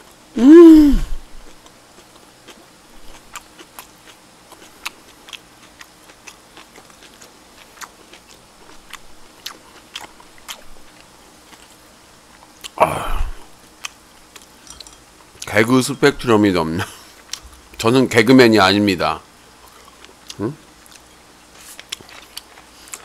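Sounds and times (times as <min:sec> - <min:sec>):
person chewing and biting food: 0:01.2 - 0:14.6, 0:19.6 - 0:23.0.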